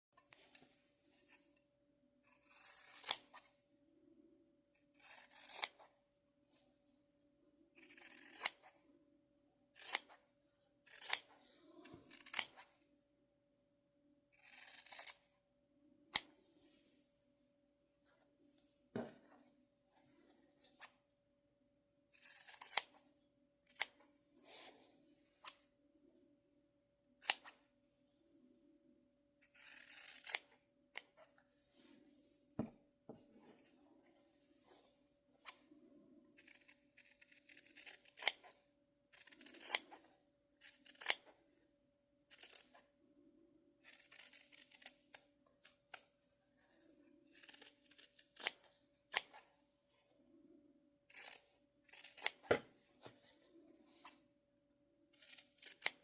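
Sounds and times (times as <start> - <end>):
scissors cutting fabric: 2.2 - 3.5, 4.8 - 6.0, 7.8 - 8.8, 9.7 - 10.2, 10.8 - 12.7, 14.4 - 15.2, 22.1 - 24.6, 27.2 - 27.6, 29.4 - 31.4, 36.3 - 41.4, 42.3 - 42.9, 43.8 - 49.5, 51.1 - 52.7, 55.1 - 56.0.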